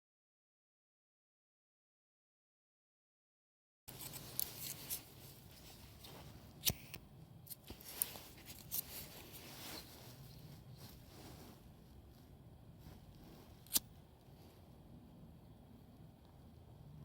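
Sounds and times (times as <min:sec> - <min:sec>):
rustling: 0:03.9 - 0:14.9.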